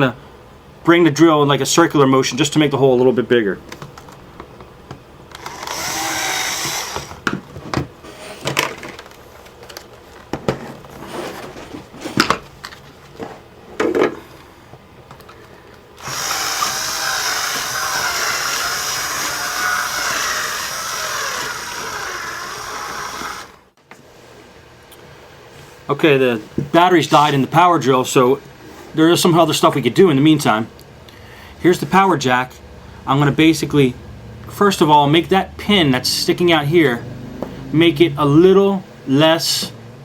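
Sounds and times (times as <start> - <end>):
power drill running: 5.3 - 7.3, 16.0 - 23.7.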